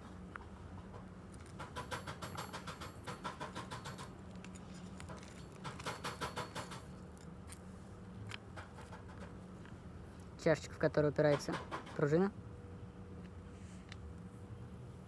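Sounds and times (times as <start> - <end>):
metal parts clicking and clinking: 3.6 - 7.6.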